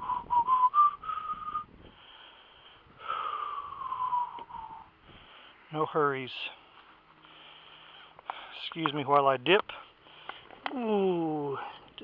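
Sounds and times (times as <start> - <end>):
man breathing heavily with wheeze: 0.0 - 5.7, 6.6 - 8.6, 9.7 - 10.6.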